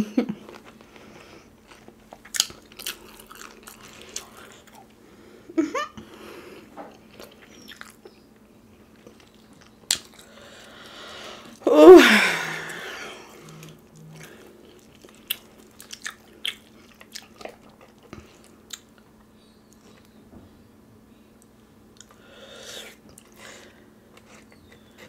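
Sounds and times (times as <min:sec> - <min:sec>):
chewing: 0:00.5 - 0:05.0, 0:06.6 - 0:10.9, 0:12.7 - 0:19.1.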